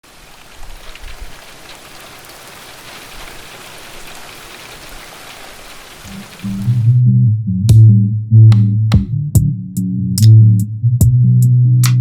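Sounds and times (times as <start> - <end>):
rain pattering on a surface: 0.0 - 6.9
low bumps: 6.1 - 12.0.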